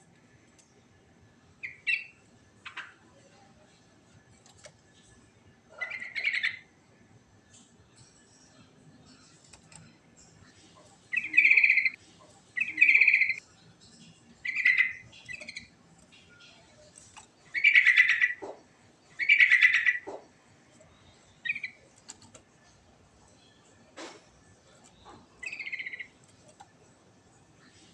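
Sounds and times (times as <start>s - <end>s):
bulbul singing: 1.6s - 3.0s, 9.8s - 20.2s, 20.8s - 21.9s, 24.7s - 26.6s.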